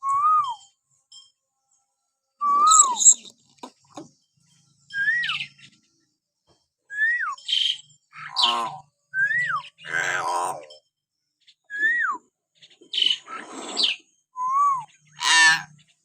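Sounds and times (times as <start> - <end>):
bird whistle rising and dropping: 0.0 - 0.7, 2.4 - 3.3, 11.7 - 12.2
harsh rasping bird calls: 2.4 - 6.0, 7.3 - 12.0, 12.6 - 14.2, 14.9 - 16.0.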